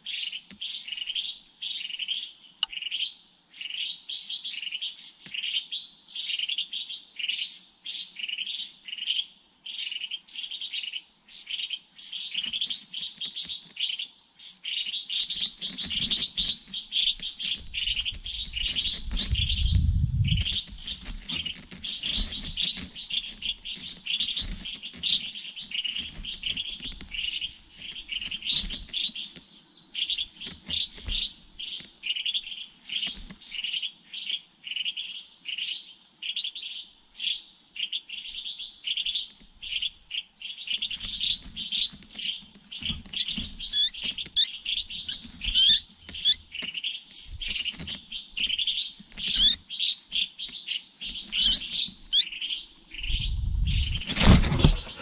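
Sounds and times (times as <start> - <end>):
small birds chirping: 0.0 - 55.0
low rumble: 53.0 - 54.0.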